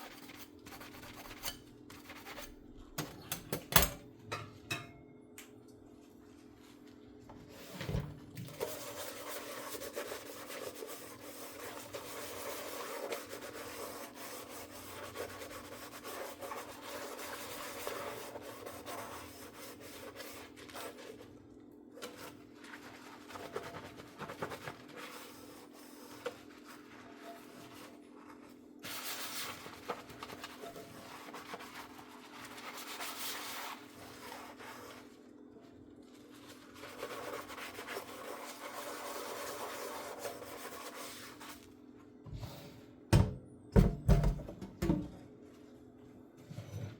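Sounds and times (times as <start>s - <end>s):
sponge scrubbing dishes: 7.4s - 21.4s, 22.0s - 41.7s
knock: 43.1s - 45.2s.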